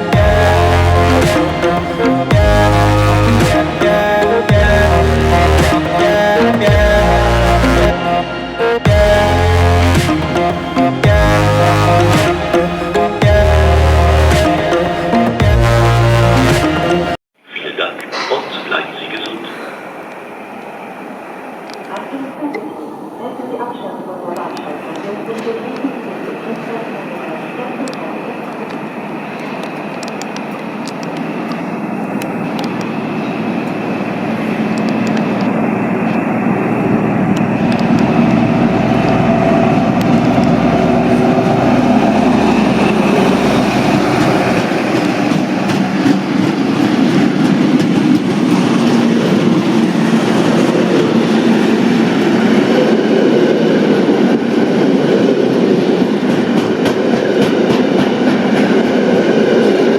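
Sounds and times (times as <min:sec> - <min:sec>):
train running on track: 0:00.0 - 0:59.9.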